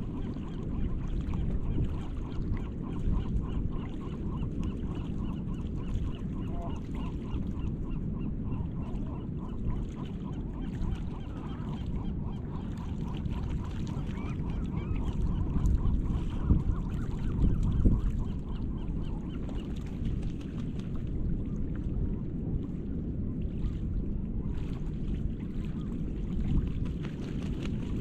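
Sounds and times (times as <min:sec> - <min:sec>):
gulls calling: 0:02.2 - 0:19.7.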